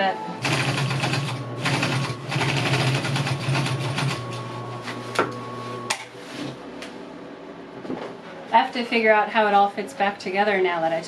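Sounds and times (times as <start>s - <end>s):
sewing machine stitching: 0.4s - 4.2s.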